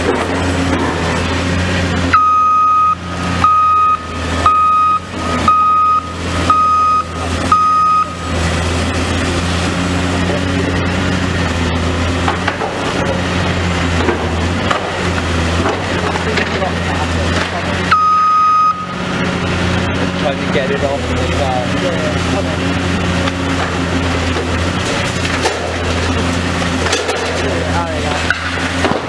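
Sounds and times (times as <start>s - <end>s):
diesel engine running: 0.0s - 29.0s
reversing alarm beeps: 2.1s - 8.4s, 17.8s - 19.0s.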